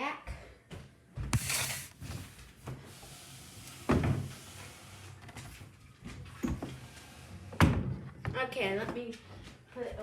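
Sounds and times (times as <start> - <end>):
furniture legs knocking and scraping: 1.3 - 2.2.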